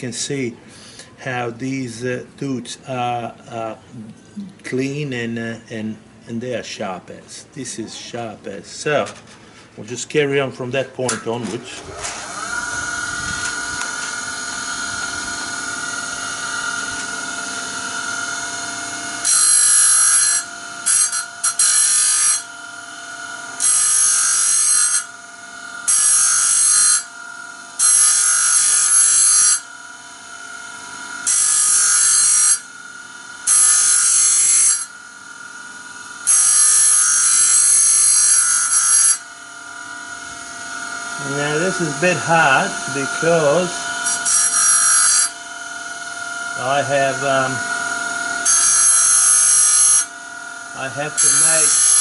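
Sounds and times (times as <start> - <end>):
grinder motor whining: 11.0 - 52.0
grinding wheel on saw teeth: 11.6 - 52.0.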